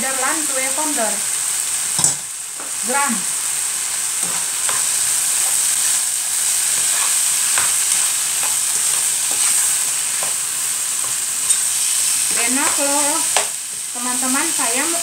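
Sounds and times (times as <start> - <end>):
food sizzling in a frying pan: 0.0 - 15.0
utensil scraping and knocking pan: 6.8 - 10.4.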